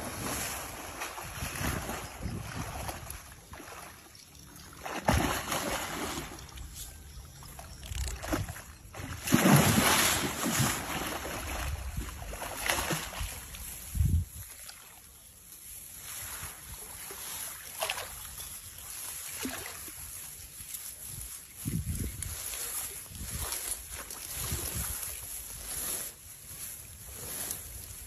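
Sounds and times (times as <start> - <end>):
river water splashing: 0.0 - 15.2, 15.9 - 21.0
wind buffeting microphone: 13.8 - 14.4, 21.6 - 22.4.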